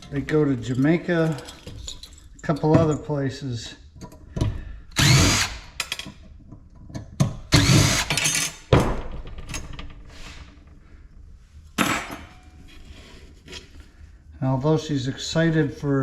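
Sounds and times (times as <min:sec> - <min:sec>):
power drill backing out screws: 0:05.0 - 0:05.9, 0:07.5 - 0:08.6.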